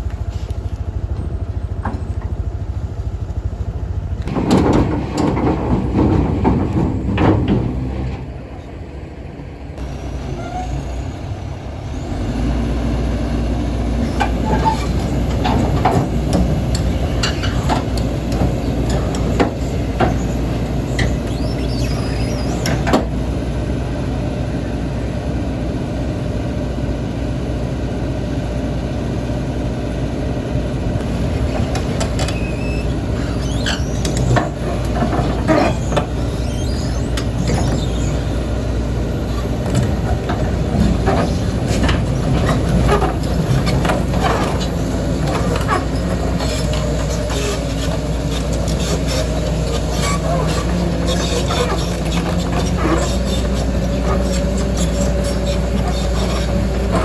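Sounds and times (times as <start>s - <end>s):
heavy diesel engine running: 0.0s - 57.0s
metallic clanks and knocks: 4.2s - 8.3s, 14.2s - 21.2s.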